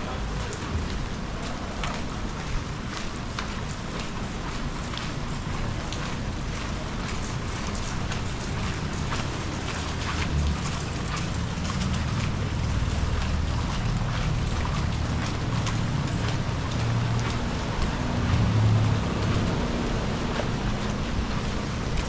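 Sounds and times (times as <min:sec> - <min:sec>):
wind buffeting microphone: 0:00.0 - 0:03.9
raindrops tapping: 0:00.0 - 0:22.0
sea waves breaking: 0:00.0 - 0:22.0.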